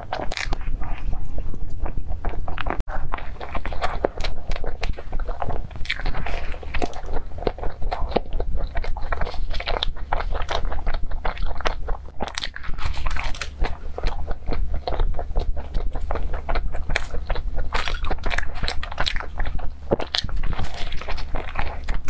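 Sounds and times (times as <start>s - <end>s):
chewing with mouth clicks: 0.0s - 22.0s.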